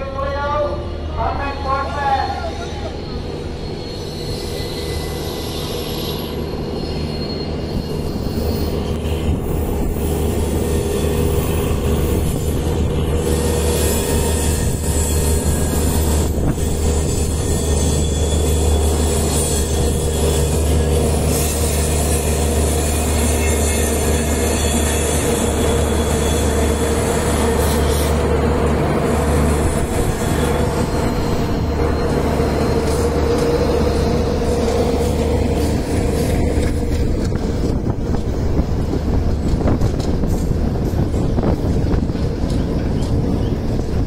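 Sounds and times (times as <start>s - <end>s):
train rumbling past: 0.0s - 44.0s
wheels squealing: 2.4s - 28.2s, 29.0s - 37.4s.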